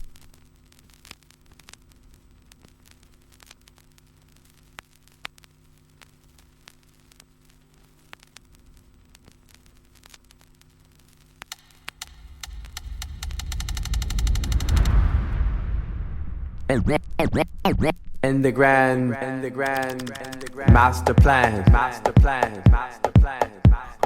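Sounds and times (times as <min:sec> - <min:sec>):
faint electrical hum: 0:00.0 - 0:15.0
sharp clicks and ticks: 0:11.4 - 0:15.2, 0:19.6 - 0:23.2.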